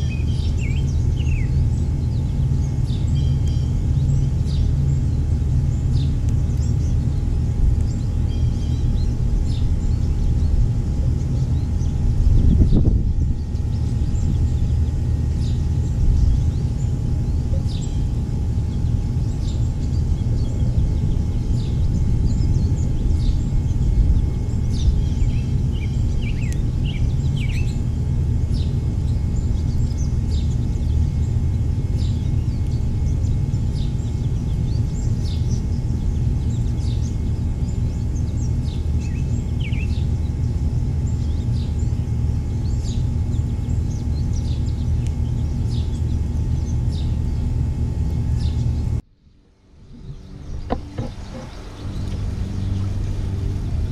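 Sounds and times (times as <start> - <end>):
small birds chirping: 0.0 - 49.0, 49.6 - 53.9
faint steady hum: 0.0 - 53.9
steady low rumble: 0.0 - 53.9.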